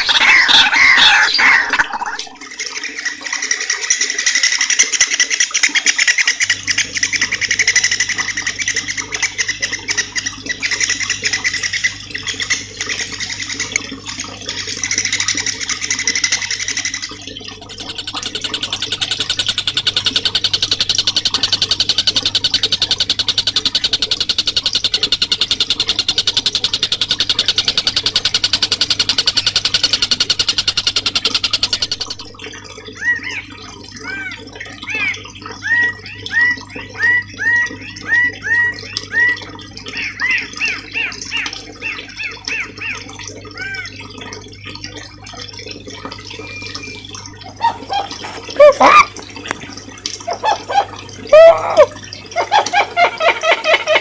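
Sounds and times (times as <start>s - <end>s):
songbird buzzing trills: 17.6s - 32.3s
bird chirps: 17.7s - 32.3s, 47.6s - 49.1s, 50.3s - 54.0s.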